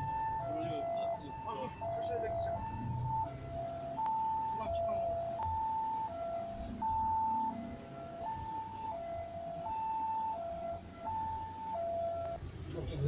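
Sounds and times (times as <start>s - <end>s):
two-tone siren: 0.0s - 12.4s.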